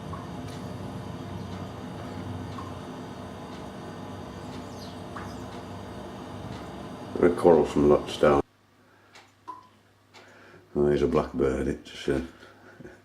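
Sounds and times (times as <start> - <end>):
starlings calling and squeaking: 4.4 - 5.7.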